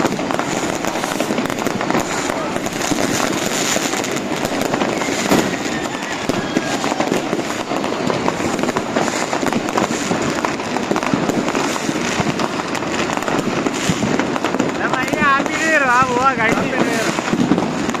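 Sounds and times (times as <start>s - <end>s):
fireworks and firecrackers crackling: 0.0s - 18.0s
faint rocket whistle: 4.5s - 8.1s.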